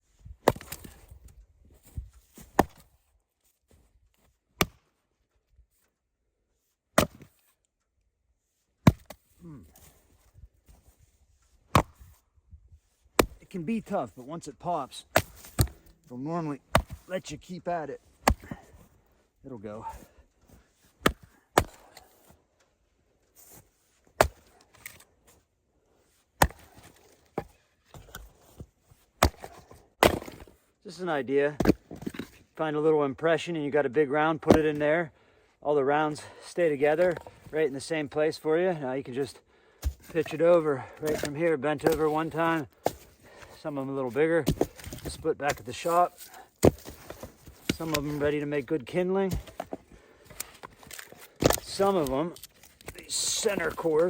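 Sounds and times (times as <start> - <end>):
maul striking firewood: 0.4 - 1.0, 2.4 - 3.0, 4.6 - 4.9, 7.0 - 7.5, 8.8 - 9.9, 11.7 - 12.2, 13.2 - 13.9, 14.7 - 17.5, 18.1 - 18.9, 21.0 - 22.4, 24.1 - 25.0, 26.4 - 28.2, 29.2 - 30.6, 31.6 - 32.3, 39.7 - 43.4, 44.4 - 48.3, 49.3 - 54.0.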